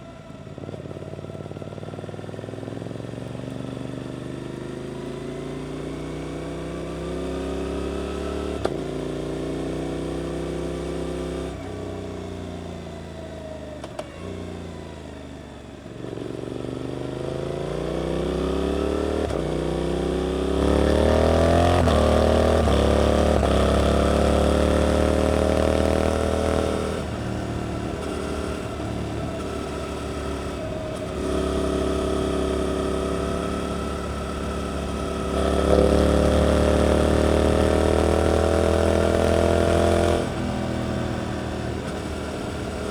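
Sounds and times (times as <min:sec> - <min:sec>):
motorcycle engine revving: 0:15.9 - 0:42.9.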